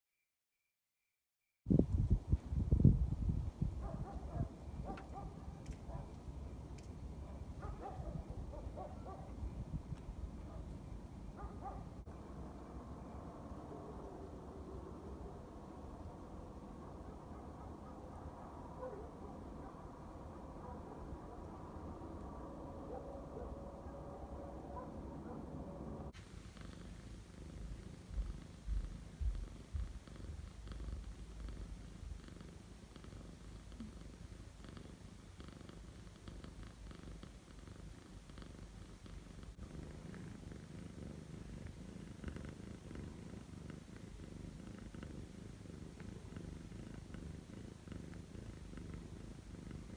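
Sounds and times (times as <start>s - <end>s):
cat purring: 2.0s - 49.9s
low bumps: 28.1s - 30.5s.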